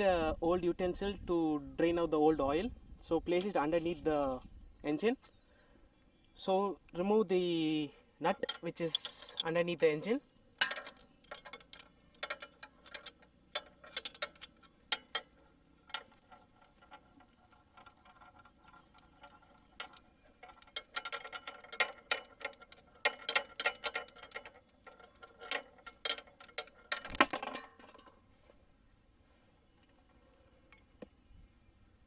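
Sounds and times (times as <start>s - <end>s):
spanner clicking on metal: 8.3s - 9.6s, 10.6s - 28.1s.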